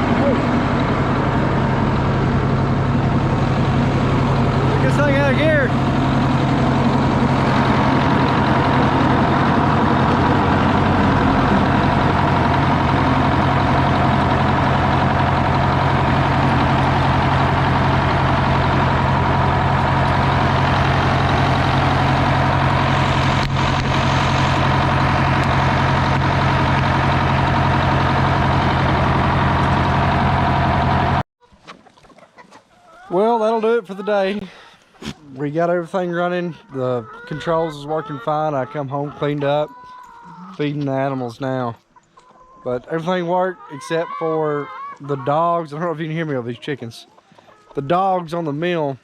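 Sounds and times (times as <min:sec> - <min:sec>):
sawmill engine running: 0:00.0 - 0:31.2.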